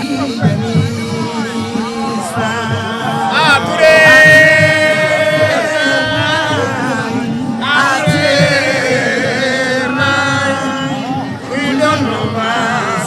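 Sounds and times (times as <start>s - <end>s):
music: 0.0s - 13.0s.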